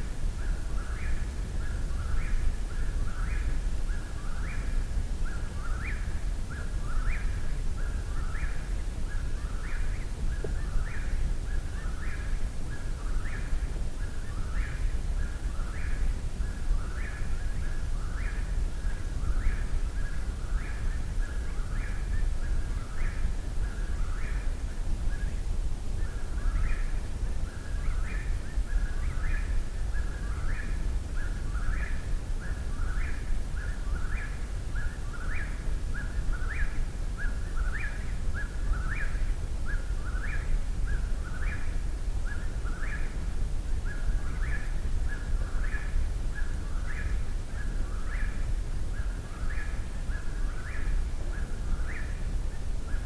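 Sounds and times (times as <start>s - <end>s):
night bird singing: 0.3s - 53.0s.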